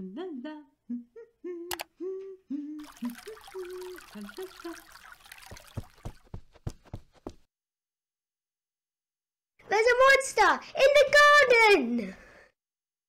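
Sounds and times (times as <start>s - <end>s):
woman humming: 0.0s - 4.8s
water pouring into a pot: 2.8s - 6.4s.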